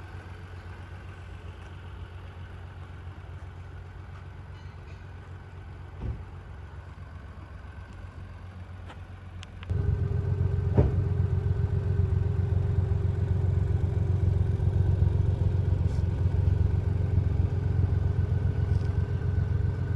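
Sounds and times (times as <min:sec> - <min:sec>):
car engine idling: 0:05.5 - 0:19.9.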